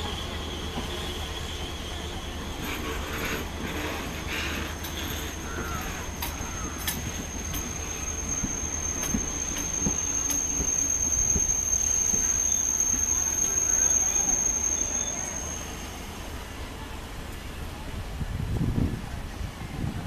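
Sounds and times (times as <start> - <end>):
faint wheel squeal: 0.0 - 16.3
train wheels clicking over rail joints: 2.4 - 15.4.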